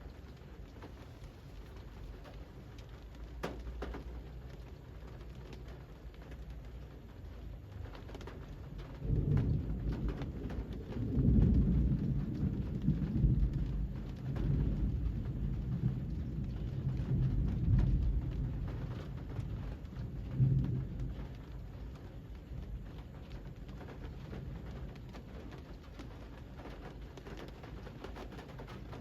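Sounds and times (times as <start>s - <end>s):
steady rain: 0.0s - 29.0s
rolling thunder: 8.6s - 29.0s.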